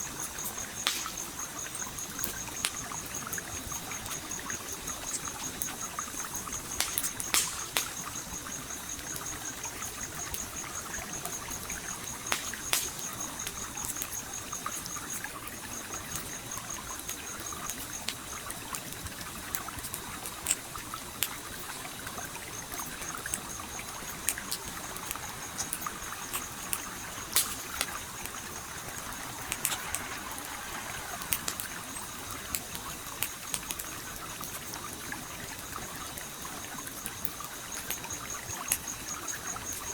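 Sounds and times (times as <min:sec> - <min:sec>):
campfire crackling: 0:00.0 - 0:39.9
stream flowing: 0:19.2 - 0:38.2.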